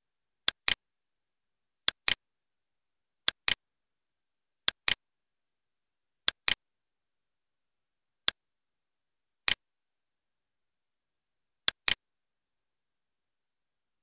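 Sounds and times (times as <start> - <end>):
computer mouse clicks: 0.5 - 0.8, 1.8 - 2.2, 3.2 - 3.6, 4.7 - 5.0, 6.3 - 6.6, 11.7 - 12.0.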